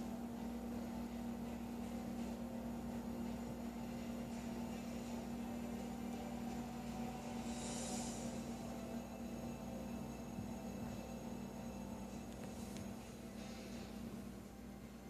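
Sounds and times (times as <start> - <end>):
steady hum: 0.0 - 15.0
faint hiss: 7.2 - 8.9.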